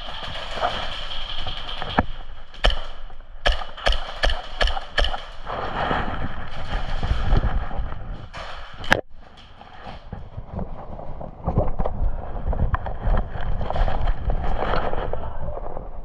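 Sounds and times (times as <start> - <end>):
airsoft gun shots: 2.6 - 5.4.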